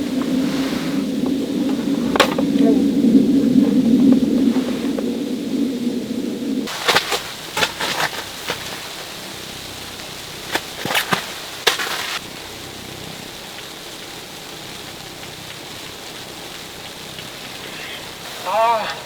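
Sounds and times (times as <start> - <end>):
short rustle: 0.0 - 2.7, 6.7 - 12.2
background hiss: 0.0 - 19.0.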